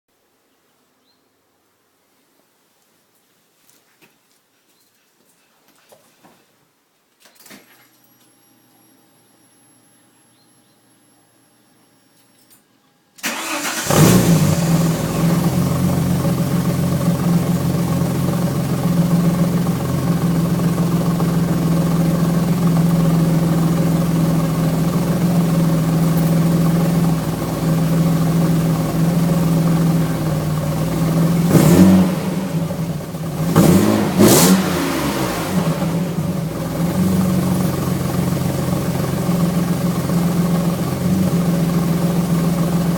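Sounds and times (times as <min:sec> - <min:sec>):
car engine starting and idling: 0:13.2 - 0:42.9
engine revving: 0:13.3 - 0:42.9.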